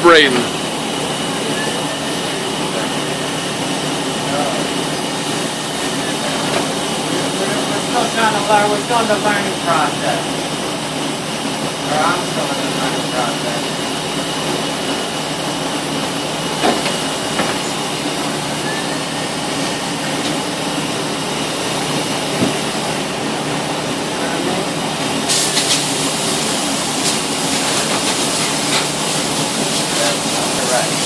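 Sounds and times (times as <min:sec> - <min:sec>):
steady machine hum: 0:00.0 - 0:31.0
machine hiss: 0:25.0 - 0:31.0.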